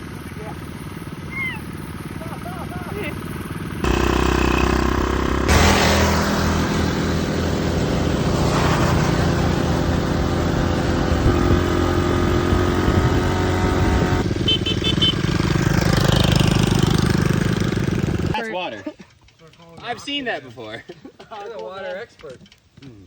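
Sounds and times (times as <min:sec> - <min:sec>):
small engine running hard: 0:00.0 - 0:18.4.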